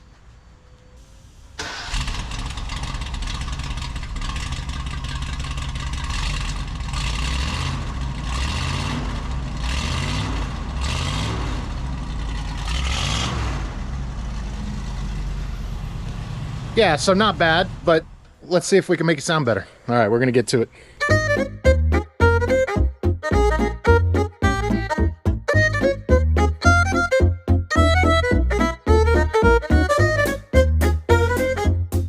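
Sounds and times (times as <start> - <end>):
car engine starting and revving: 1.0 - 18.4.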